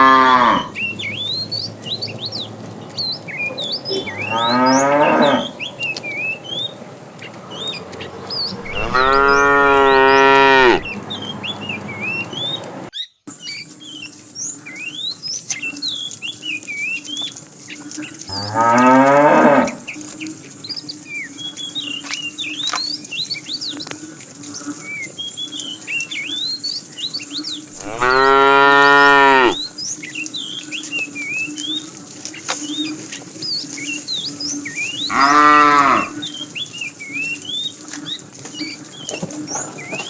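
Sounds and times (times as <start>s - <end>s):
cows mooing: 0.0s - 12.5s, 18.2s - 20.1s, 27.7s - 29.7s, 34.9s - 36.4s.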